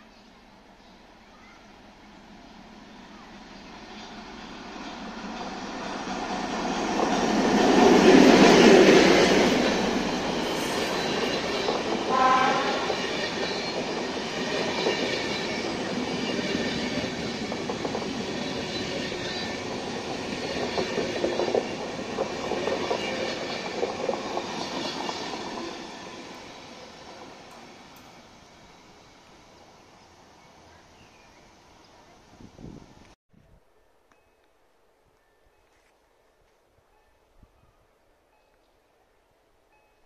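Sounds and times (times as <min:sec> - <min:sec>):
passenger train passing: 0:00.4 - 0:33.2
wheels clacking over rail joints: 0:03.9 - 0:28.1.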